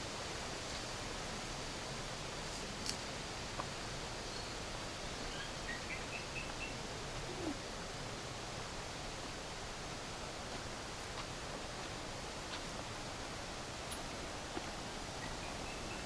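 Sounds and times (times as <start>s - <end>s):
outdoor noise: 0.0s - 16.0s.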